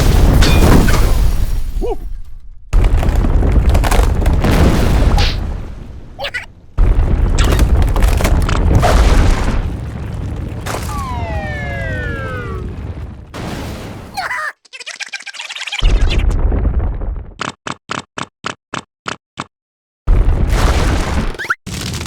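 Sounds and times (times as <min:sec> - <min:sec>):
deep rumbling booms: 0:02.4 - 0:14.1, 0:15.9 - 0:17.4
falling pitched whine: 0:10.8 - 0:12.9.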